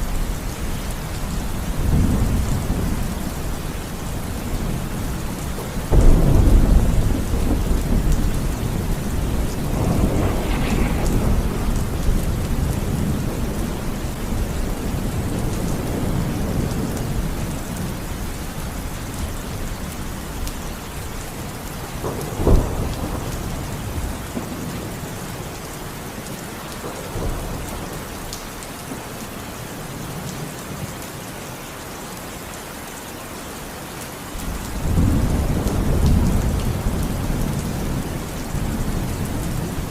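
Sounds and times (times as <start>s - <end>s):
steady rain: 0.0s - 39.9s
rolling thunder: 1.1s - 20.4s, 21.4s - 25.6s, 34.4s - 39.9s
sharp thunderclap: 5.7s - 17.4s, 22.0s - 24.7s.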